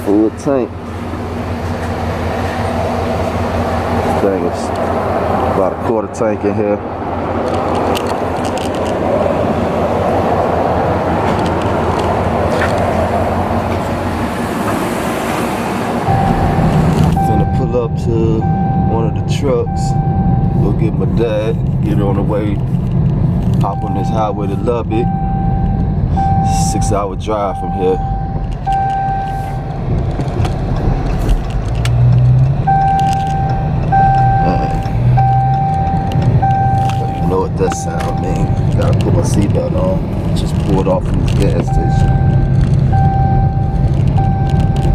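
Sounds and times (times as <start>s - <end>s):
car engine running: 0.0s - 5.9s, 15.5s - 44.9s
seatbelt warning chime: 16.0s - 22.4s, 23.6s - 44.9s.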